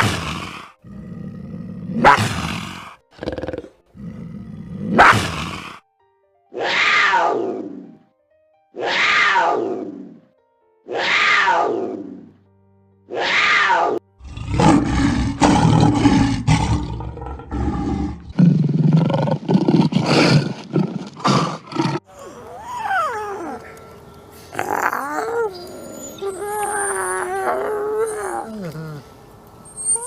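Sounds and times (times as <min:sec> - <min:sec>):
big cat roaring: 0:00.0 - 0:05.8, 0:08.8 - 0:10.2, 0:10.9 - 0:12.4, 0:13.1 - 0:23.7, 0:24.5 - 0:29.1
thin gliding calls: 0:22.2 - 0:28.8.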